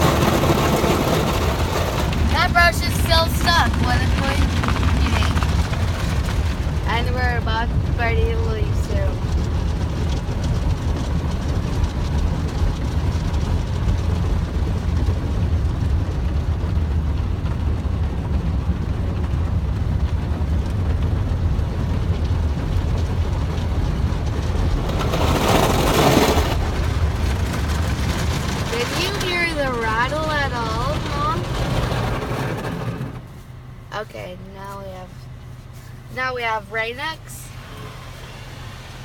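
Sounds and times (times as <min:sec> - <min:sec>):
loud rushing noise: 0:00.0 - 0:07.3
car wash machinery rumble: 0:00.0 - 0:39.0.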